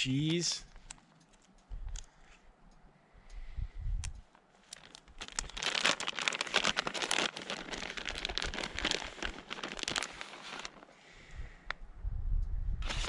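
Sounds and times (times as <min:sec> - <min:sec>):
packaging crinkling: 0:04.6 - 0:10.9.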